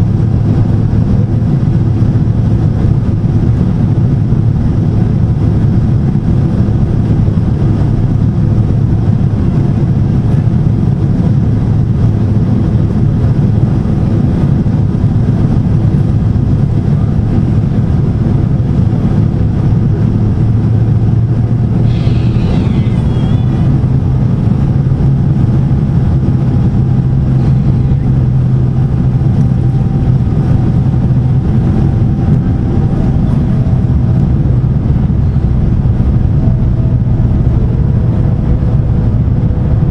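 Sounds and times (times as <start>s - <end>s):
jet engine roar in cabin: 0.0s - 39.9s
high warbling sound: 21.8s - 24.3s.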